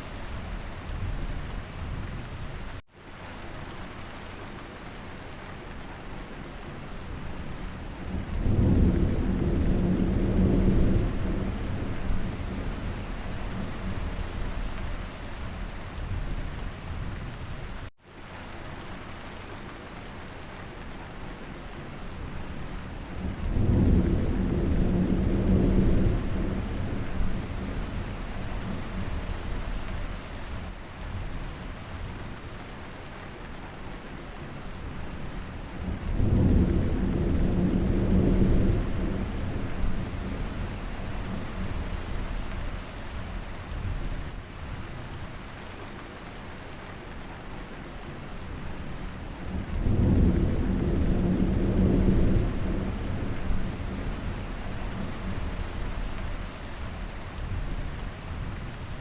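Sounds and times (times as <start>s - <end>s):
steady rain: 0.0s - 59.0s
low rolls of thunder: 8.1s - 17.1s, 23.2s - 30.8s, 35.8s - 44.2s, 49.4s - 59.0s.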